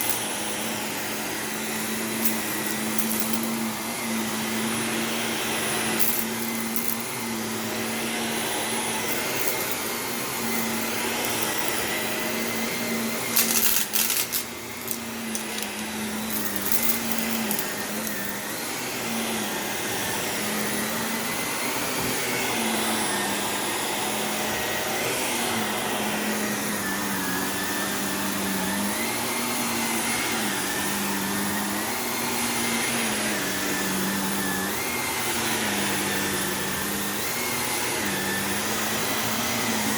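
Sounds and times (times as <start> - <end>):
grit crackling in vacuum: 0.0 - 19.6
vacuum cleaner running on carpet: 0.0 - 39.9.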